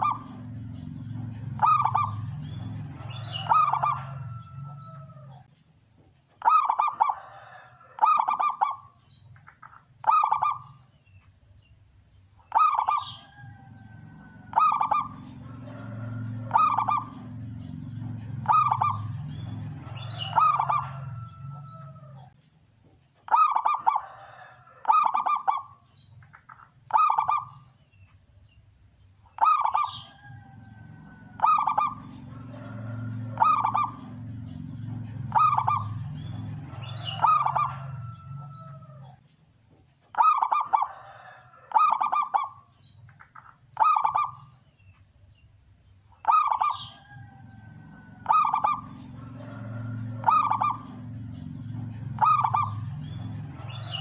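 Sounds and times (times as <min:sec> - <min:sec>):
dove cooing: 0:00.0 - 0:05.5, 0:06.4 - 0:09.0, 0:09.6 - 0:10.8, 0:12.5 - 0:22.4, 0:23.3 - 0:27.7, 0:29.4 - 0:39.2, 0:40.2 - 0:42.7, 0:43.8 - 0:44.5, 0:46.2 - 0:54.0
low hum: 0:00.0 - 0:05.5, 0:13.2 - 0:22.4, 0:28.5 - 0:39.2, 0:43.1 - 0:54.0.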